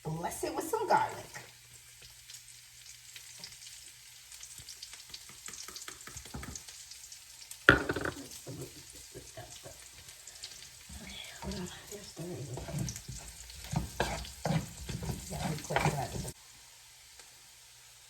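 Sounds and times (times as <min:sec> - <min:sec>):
food sizzling in a pan: 0:00.0 - 0:18.0
utensil scraping and clicking: 0:12.6 - 0:16.4.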